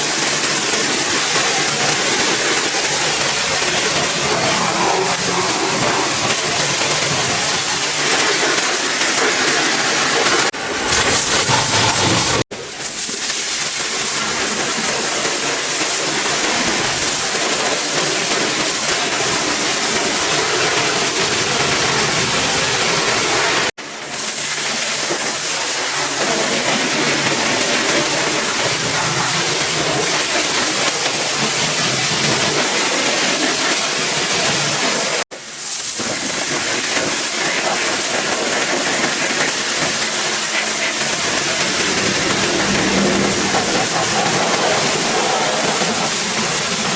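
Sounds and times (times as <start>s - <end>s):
pressure washer spraying: 0.5s - 14.1s.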